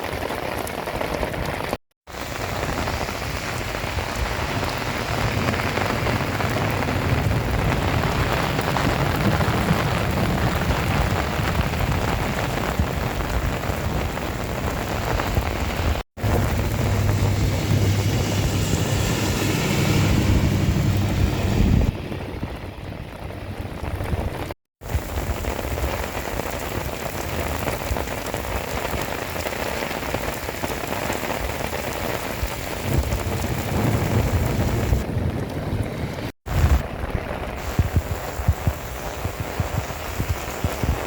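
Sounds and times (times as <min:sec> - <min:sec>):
heavy rain pouring: 0:00.0 - 0:41.0
deep low rumble: 0:16.2 - 0:24.6.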